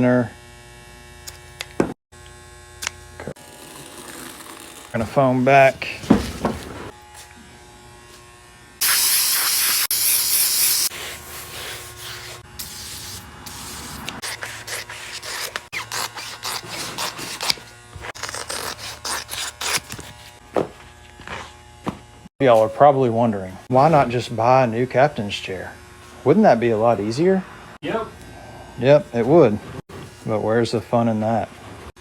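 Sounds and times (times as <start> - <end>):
spray adhesive hissing: 8.8 - 14.1.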